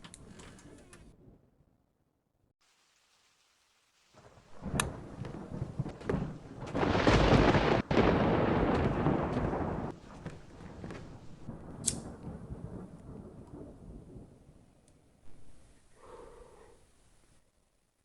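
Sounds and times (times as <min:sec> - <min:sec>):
steady hiss: 0:02.6 - 0:05.5
sharp thunder crack: 0:04.2 - 0:14.6
rolling thunder rumble: 0:04.2 - 0:15.7.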